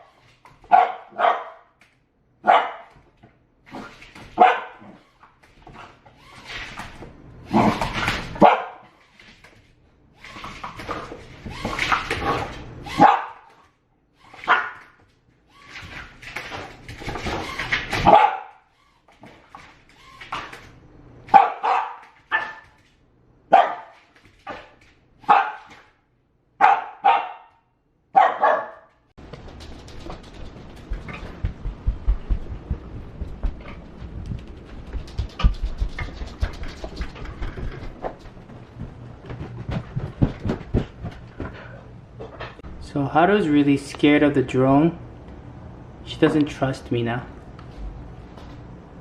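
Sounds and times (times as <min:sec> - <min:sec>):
dog barking: 0:00.7 - 0:01.7, 0:02.4 - 0:02.9, 0:04.4 - 0:05.0, 0:08.4 - 0:09.0, 0:12.9 - 0:13.5, 0:18.0 - 0:18.7, 0:21.3 - 0:22.6, 0:23.5 - 0:24.0, 0:25.2 - 0:25.9, 0:26.6 - 0:29.0.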